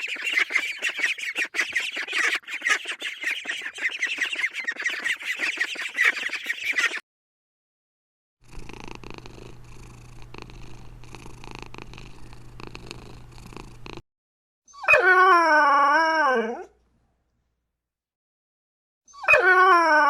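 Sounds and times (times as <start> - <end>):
cat purring: 8.4 - 14.0
dog howling: 14.8 - 16.7, 19.2 - 20.0.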